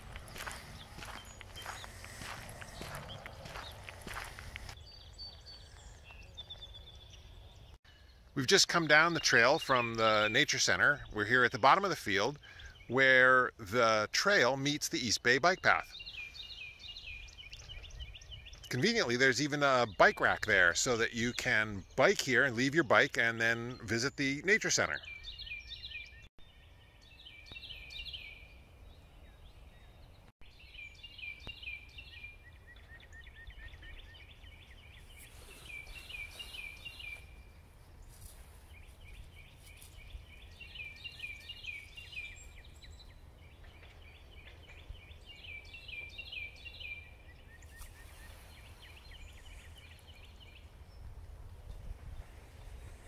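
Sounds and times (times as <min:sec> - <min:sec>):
steady low rumble: 0:00.0 - 0:04.8
songbird singing: 0:00.0 - 0:53.0.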